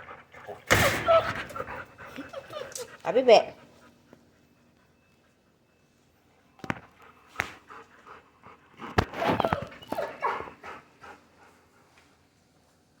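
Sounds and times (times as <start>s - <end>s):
dog whimpering and yelping: 0.5s - 3.1s, 9.1s - 10.6s.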